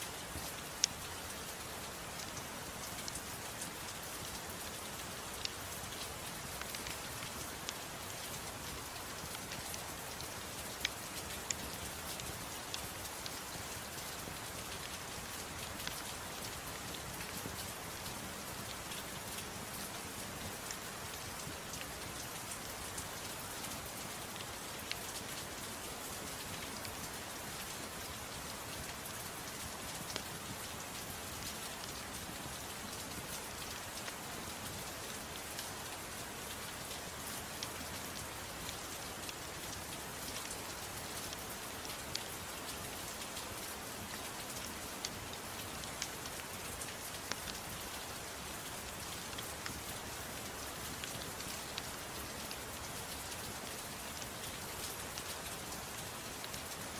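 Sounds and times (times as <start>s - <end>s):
gentle rain: 0.0s - 56.9s.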